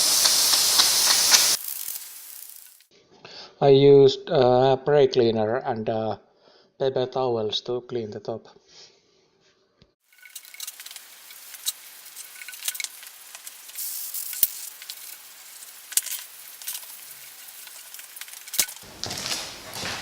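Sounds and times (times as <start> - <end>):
aerosol spray hissing: 0.0 - 2.9, 10.2 - 18.8.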